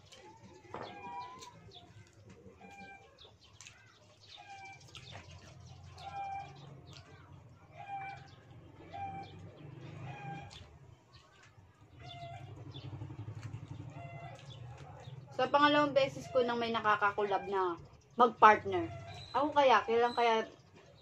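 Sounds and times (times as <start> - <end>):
bird calling: 0.0 - 21.0
eating clicks and smacks: 1.2 - 7.6.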